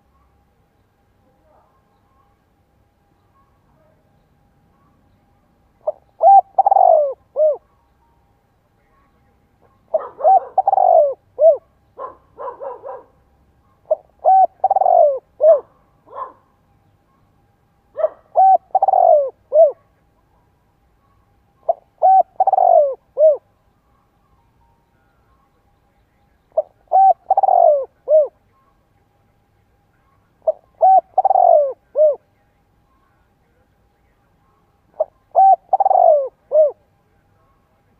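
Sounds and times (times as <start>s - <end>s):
dove cooing: 5.8s - 7.7s, 9.9s - 13.2s, 13.8s - 16.5s, 18.0s - 19.9s, 21.6s - 23.5s, 26.6s - 28.4s, 30.4s - 32.3s, 34.9s - 36.9s.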